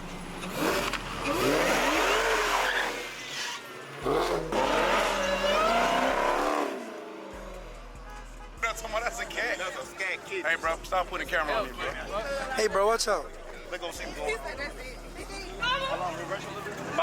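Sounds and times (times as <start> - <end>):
tires squealing: 0.0 - 7.5
car engine revving: 0.0 - 9.4.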